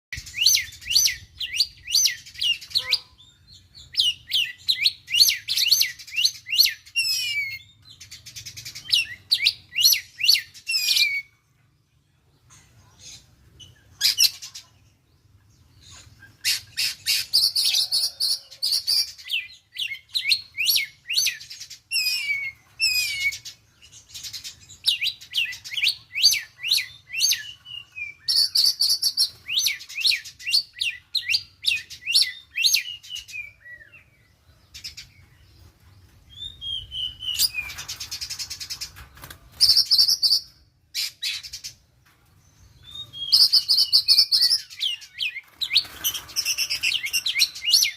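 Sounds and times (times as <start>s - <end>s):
bird singing whistles and rattles: 0.2s - 3.1s, 16.2s - 33.6s, 36.3s - 41.8s, 42.6s - 47.9s.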